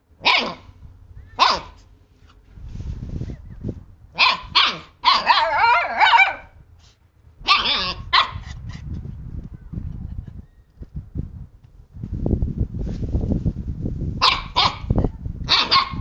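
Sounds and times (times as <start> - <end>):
puppies barking and yelping: 7.5 - 8.4.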